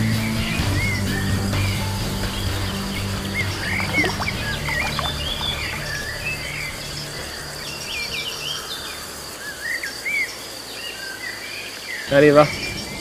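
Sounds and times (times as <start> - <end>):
birds chirping and whistling: 0.1 - 13.0
high-pitched insect trill: 3.6 - 11.5.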